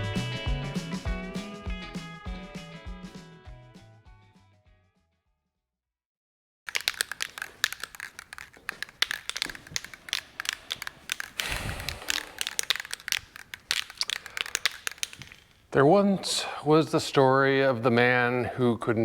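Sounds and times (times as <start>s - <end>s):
crinkling and clicking when handled: 6.7s - 15.8s.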